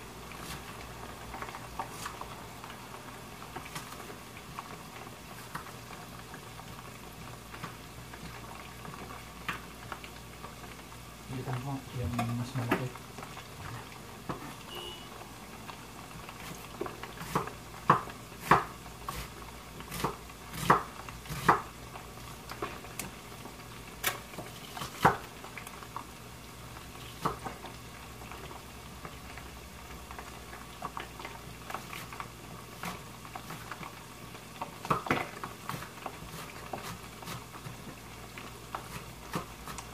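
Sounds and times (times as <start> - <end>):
chicken sizzling in hot oil: 0.0 - 39.9
knife chopping on wooden board: 17.2 - 19.3, 19.9 - 21.7.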